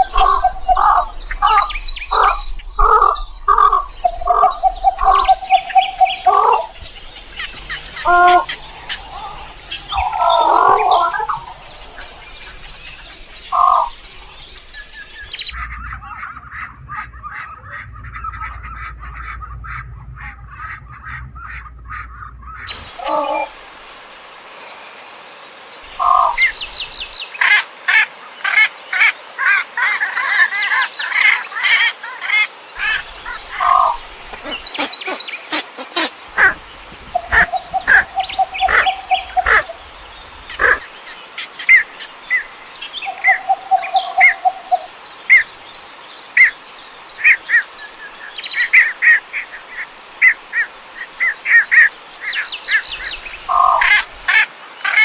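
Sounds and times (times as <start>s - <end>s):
long low bird notes: 0.0s - 24.0s
birds chirping: 0.0s - 27.5s, 28.9s - 55.0s.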